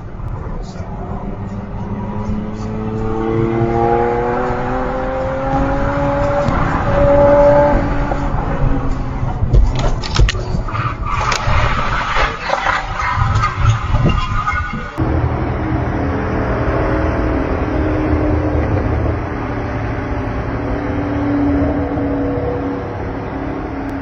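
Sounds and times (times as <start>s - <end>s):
car engine revving: 0.0s - 24.0s
sharp knocks and clatter: 9.5s - 11.5s.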